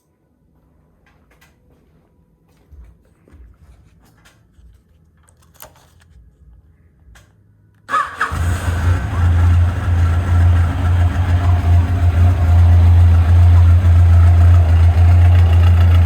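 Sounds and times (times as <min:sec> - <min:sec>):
motorcycle starter crank: 0:07.9 - 0:10.7
motorcycle engine idling loudly: 0:08.3 - 0:16.0.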